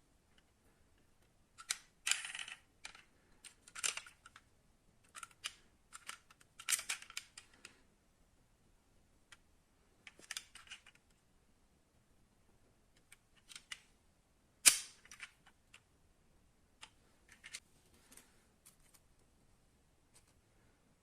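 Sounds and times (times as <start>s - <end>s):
metal model cars clicking: 1.6s - 4.4s, 5.1s - 7.7s.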